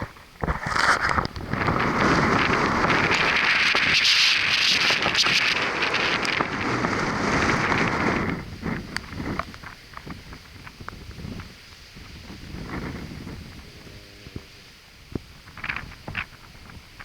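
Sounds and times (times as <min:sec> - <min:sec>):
rough surf: 0:00.0 - 0:17.0
strong wind: 0:00.0 - 0:17.0.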